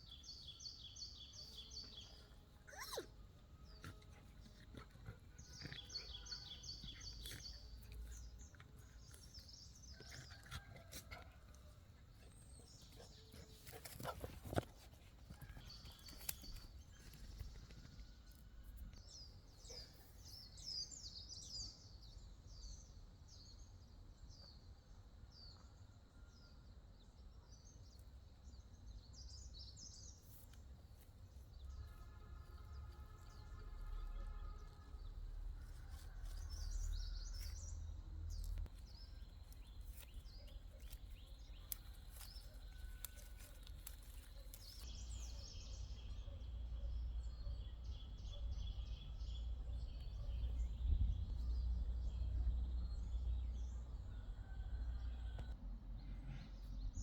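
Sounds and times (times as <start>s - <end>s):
small birds chirping: 0.0s - 23.5s, 27.8s - 55.6s.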